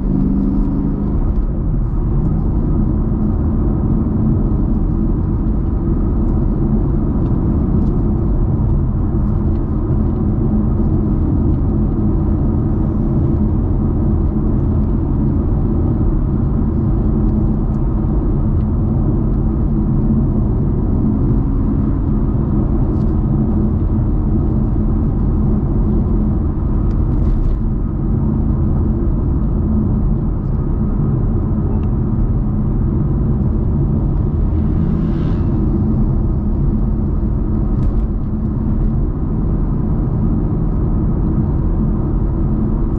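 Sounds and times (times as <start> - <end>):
car engine rumbling: 0.0 - 42.9
road noise: 0.0 - 42.9.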